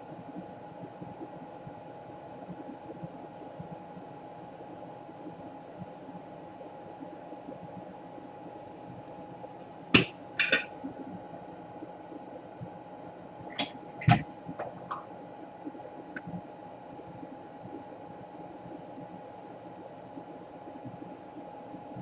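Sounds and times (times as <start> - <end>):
faint steady hum: 0.0 - 22.0
small tools clicking and tapping: 10.0 - 10.7.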